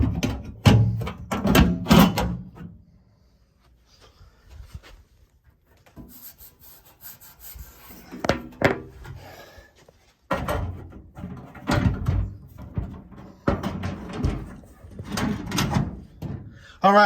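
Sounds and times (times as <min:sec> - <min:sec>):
knocks and clatter on metal: 0:00.0 - 0:02.7, 0:10.3 - 0:16.5.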